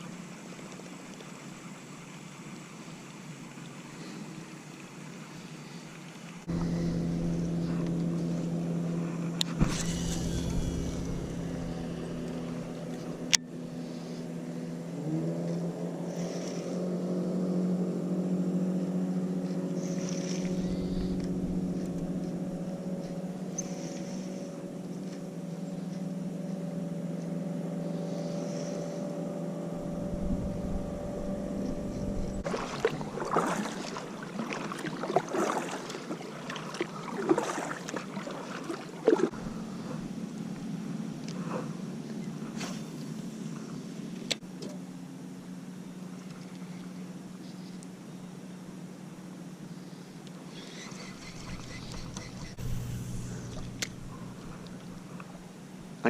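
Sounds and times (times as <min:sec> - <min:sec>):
small boat motor humming: 0:00.0 - 0:56.0
sharp clicks: 0:51.6 - 0:55.3.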